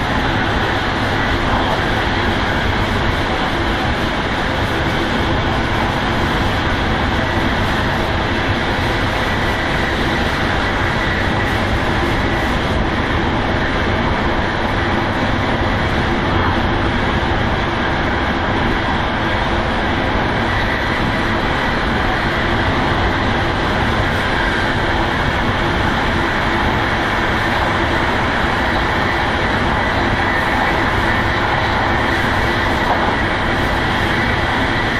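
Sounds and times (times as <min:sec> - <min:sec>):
train wheels rumbling on rails: 0:00.0 - 0:34.9.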